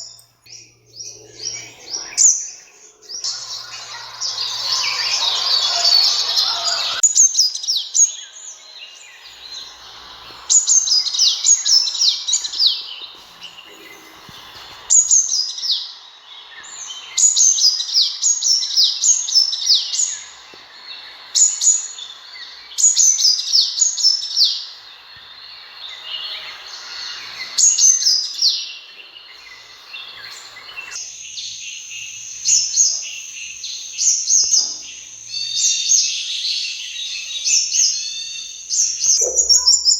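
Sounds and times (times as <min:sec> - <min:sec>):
sunbird calling: 0:00.0 - 0:39.9
steady high tone: 0:00.5 - 0:07.0.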